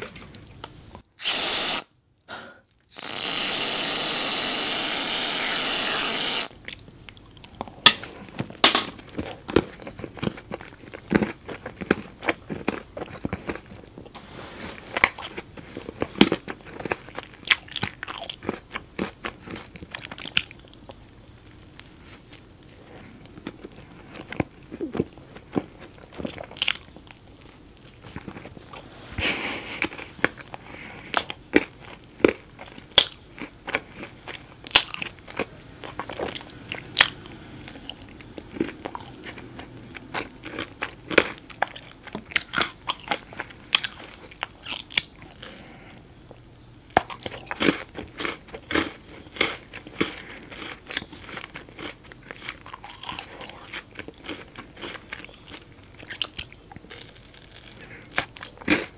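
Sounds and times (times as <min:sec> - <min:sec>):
crunchy food crunching: 0:02.9 - 0:28.9, 0:29.8 - 0:58.9
soft chewing: 0:06.5 - 0:58.9.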